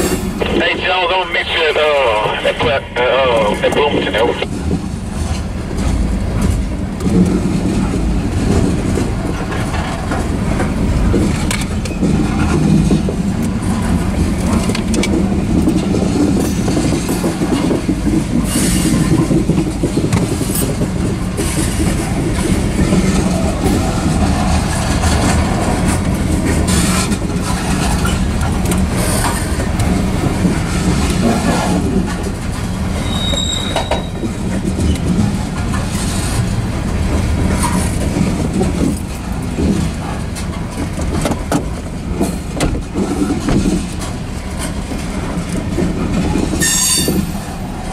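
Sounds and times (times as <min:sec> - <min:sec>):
steel wheels rumbling on rail: 0:00.0 - 0:47.9
train clicks and clanks: 0:00.0 - 0:47.9
high wheel squeal: 0:33.0 - 0:34.2, 0:46.6 - 0:47.2.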